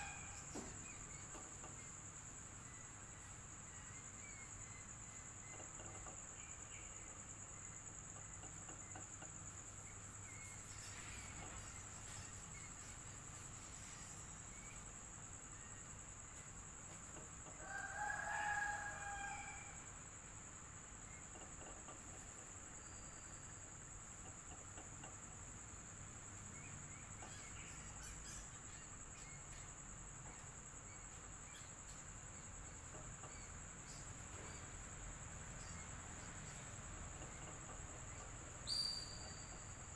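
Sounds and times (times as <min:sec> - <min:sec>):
rooster crowing: 0:00.0 - 0:00.7, 0:17.5 - 0:20.0
crickets trilling: 0:00.0 - 0:39.9.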